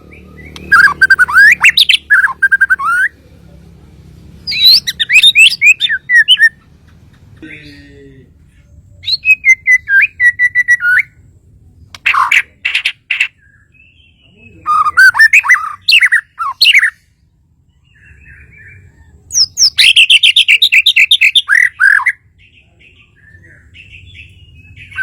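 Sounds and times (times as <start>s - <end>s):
bird singing whistled phrases: 0.0s - 3.1s, 4.5s - 6.6s, 9.0s - 11.2s, 13.7s - 17.0s, 17.9s - 22.2s.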